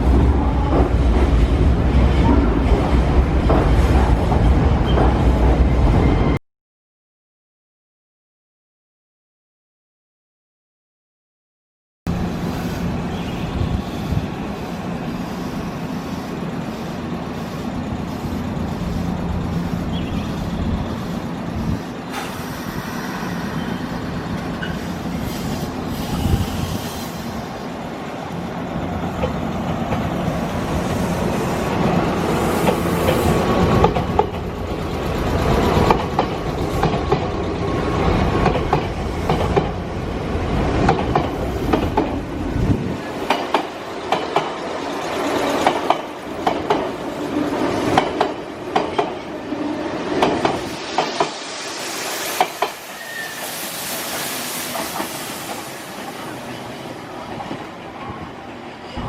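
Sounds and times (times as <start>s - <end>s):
train wheels clicking over rail joints: 32.6s - 37.6s, 38.2s - 39.8s, 40.8s - 42.3s, 43.1s - 49.4s, 50.0s - 51.4s, 52.3s - 53.0s.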